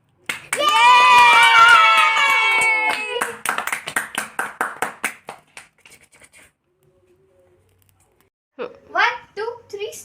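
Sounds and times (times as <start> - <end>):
hands clapping in rhythm: 0.2 - 6.1.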